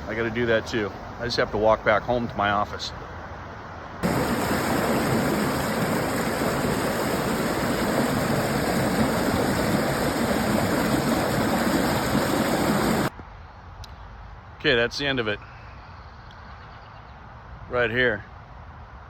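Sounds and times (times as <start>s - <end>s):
creek water rushing: 0.0s - 1.1s, 4.0s - 13.1s.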